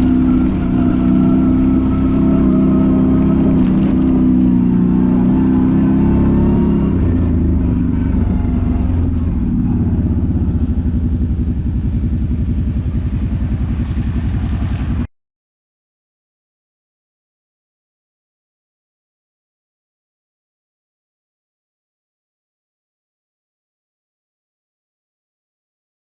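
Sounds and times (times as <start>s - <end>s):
quad bike engine idling: 0.0s - 15.1s.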